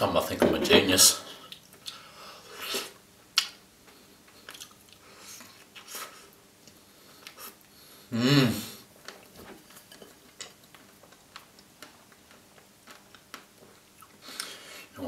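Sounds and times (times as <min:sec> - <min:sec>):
wet chewing noises: 0:03.4 - 0:07.7, 0:09.0 - 0:14.6
person humming: 0:08.1 - 0:08.8.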